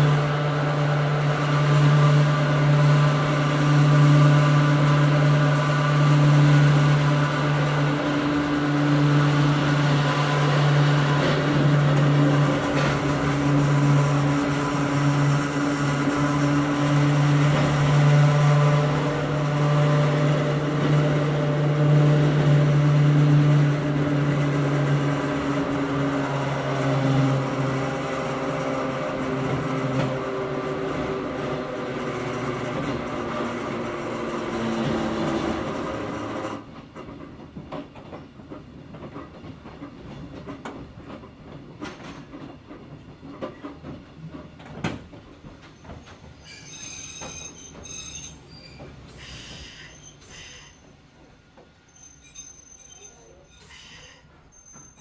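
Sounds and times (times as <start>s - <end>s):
rail and wheel noise: 0.0s - 55.0s
railcar motor hum: 0.0s - 55.0s
scattered clicks and knocks: 36.4s - 46.2s.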